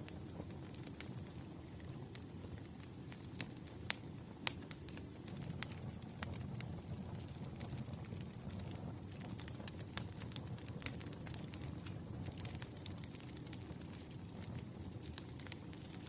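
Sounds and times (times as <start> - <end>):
rumble of flames: 0.0 - 16.0
wood fire popping and snapping: 0.0 - 16.0.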